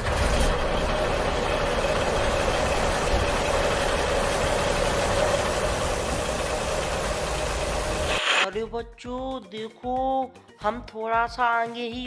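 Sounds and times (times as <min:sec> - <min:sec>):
toy truck motor rumble: 0:00.0 - 0:08.4.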